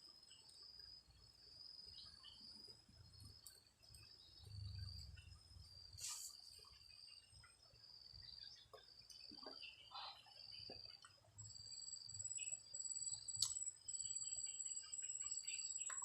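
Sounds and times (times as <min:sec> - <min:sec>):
crickets trilling: 0:00.0 - 0:16.0
brief hiss: 0:06.0 - 0:06.5.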